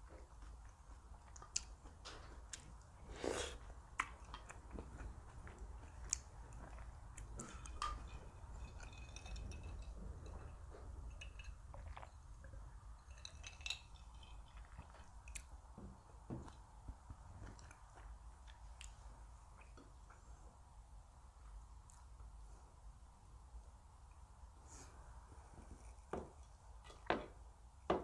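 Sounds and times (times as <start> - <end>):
person chewing food: 0.0 - 15.8, 17.4 - 20.3.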